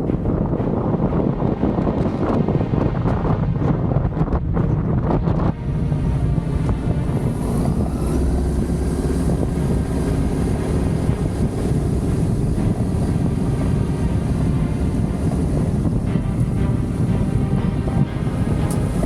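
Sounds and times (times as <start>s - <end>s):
motorcycle engine droning: 4.5s - 19.0s.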